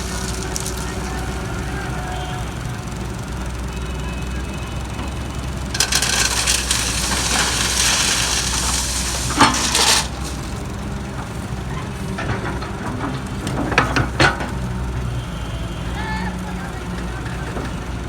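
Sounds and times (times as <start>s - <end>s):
rough crunching hiss: 0.0s - 2.2s, 5.7s - 11.7s
diesel engine running: 0.0s - 18.0s.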